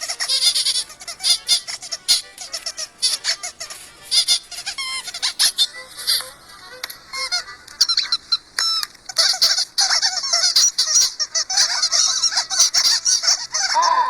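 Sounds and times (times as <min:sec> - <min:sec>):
squeaky chirps and honks: 0:12.3 - 0:14.0.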